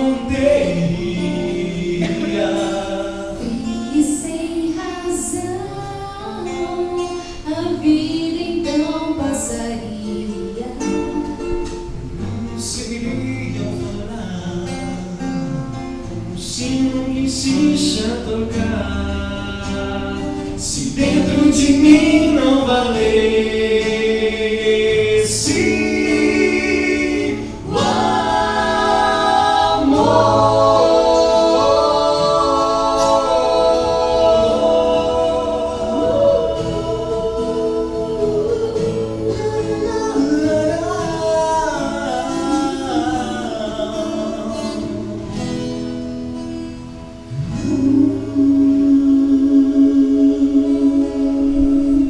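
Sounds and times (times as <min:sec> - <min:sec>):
vocal group singing in harmony: 0:00.0 - 0:15.5, 0:16.4 - 0:46.0, 0:47.2 - 0:52.0.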